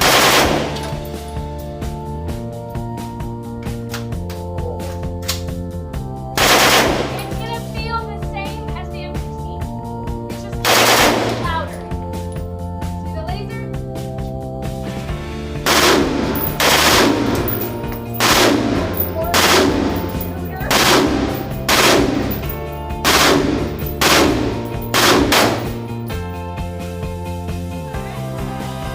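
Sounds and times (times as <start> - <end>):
automatic gunfire bursts: 0.0 - 1.0, 6.4 - 7.4, 10.6 - 11.6, 15.7 - 26.0
background music: 0.0 - 28.9.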